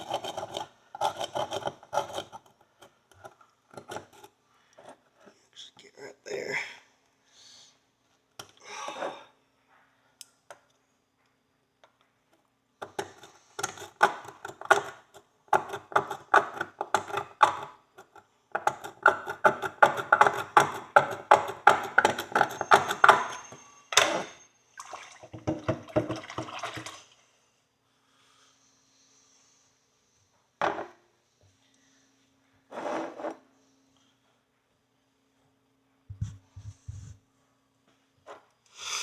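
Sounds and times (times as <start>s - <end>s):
hand tool scraping horseshoe: 0.0s - 5.0s, 12.8s - 24.4s.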